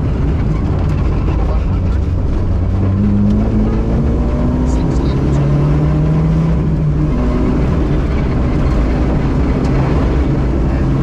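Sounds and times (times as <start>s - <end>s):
car engine running: 0.0s - 11.0s
car rumbling on gravel: 0.0s - 11.0s.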